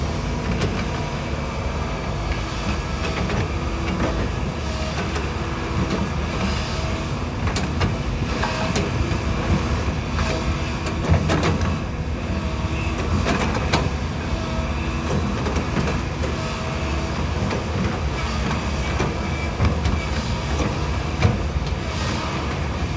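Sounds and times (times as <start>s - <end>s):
diesel engine low rumble: 0.0s - 22.9s
metallic clanks and squeaks: 14.8s - 21.3s.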